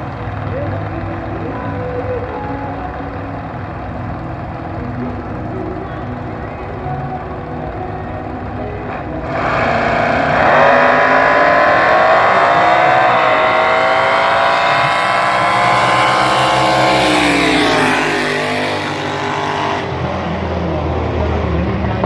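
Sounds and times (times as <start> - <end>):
dragster engine at high revs: 9.2 - 20.0.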